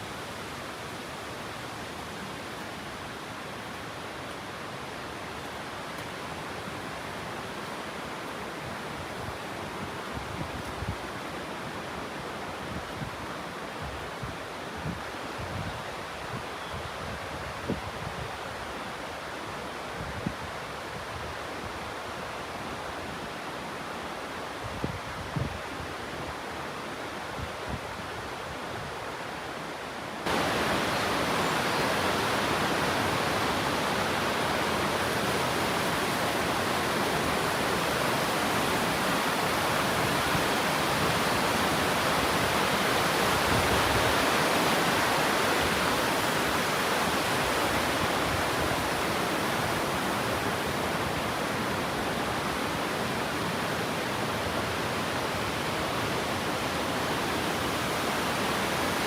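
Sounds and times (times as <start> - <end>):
waterfall roaring: 25.6 - 59.0.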